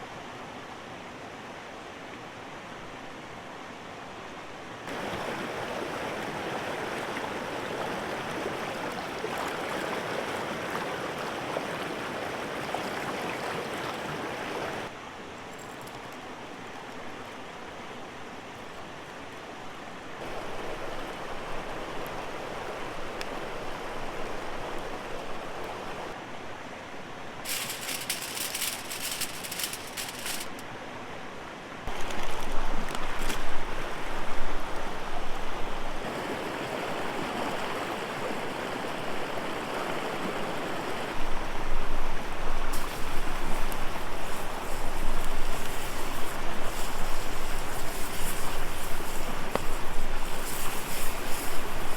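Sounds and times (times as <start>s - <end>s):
rushing river water: 4.9s - 15.3s, 16.5s - 26.3s, 27.3s - 51.9s
crackling hiss: 27.4s - 30.8s, 40.8s - 51.9s.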